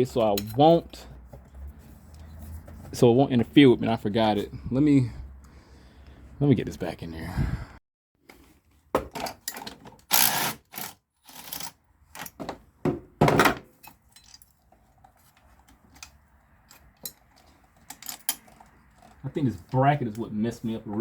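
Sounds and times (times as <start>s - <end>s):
metal tools clanking and scraping: 0.0s - 1.1s, 9.1s - 12.5s, 13.7s - 20.3s.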